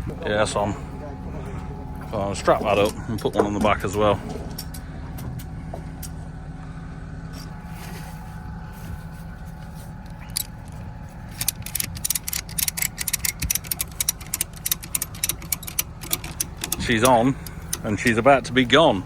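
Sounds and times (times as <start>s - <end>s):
low engine idle: 0.0s - 19.0s
ratchet strap clicking: 10.1s - 18.2s.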